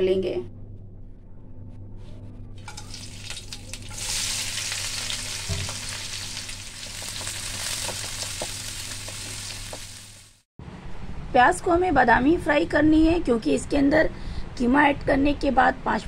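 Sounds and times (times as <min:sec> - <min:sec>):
onions sizzling loudly: 0:02.6 - 0:10.4
spices crackling in hot oil: 0:02.6 - 0:10.4.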